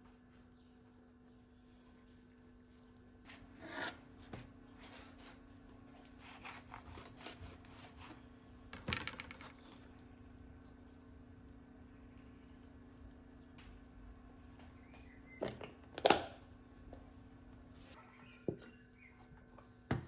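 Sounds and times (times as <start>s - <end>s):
rustling and scraping of wrap: 3.2s - 8.4s
steady low hum: 9.5s - 20.0s.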